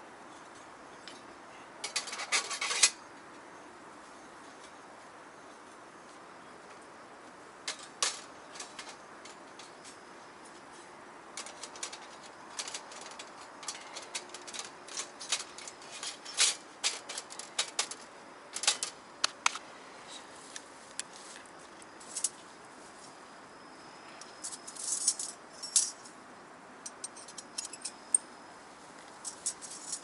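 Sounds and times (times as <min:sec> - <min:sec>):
metallic clicks of steel panels: 0:01.8 - 0:03.0, 0:07.6 - 0:10.0, 0:11.4 - 0:19.6.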